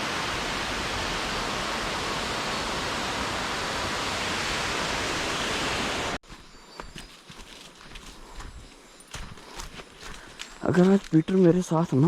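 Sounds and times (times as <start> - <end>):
waterfall roaring: 0.0 - 6.2.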